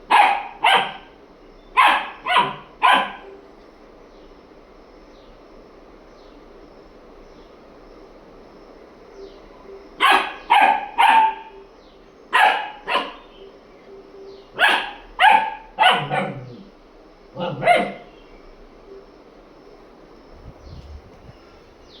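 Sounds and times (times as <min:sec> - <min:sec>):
dog barking: 0:00.0 - 0:01.2, 0:01.8 - 0:03.4, 0:10.0 - 0:11.6, 0:12.3 - 0:13.3, 0:14.6 - 0:16.7, 0:17.4 - 0:18.1.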